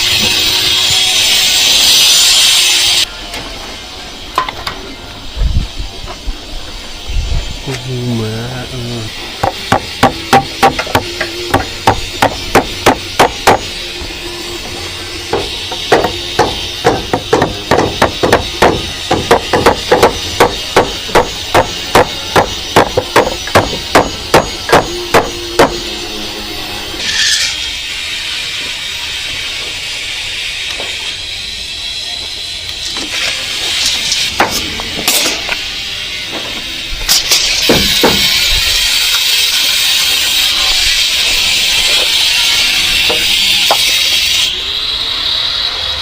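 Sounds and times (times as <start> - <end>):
hammer striking nails into wood: 9.4 - 13.6, 15.3 - 25.8.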